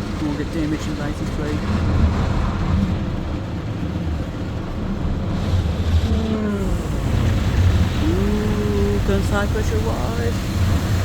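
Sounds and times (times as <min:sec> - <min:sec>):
car wash low rumble: 0:00.0 - 0:11.0
spraying water hiss: 0:06.6 - 0:11.0.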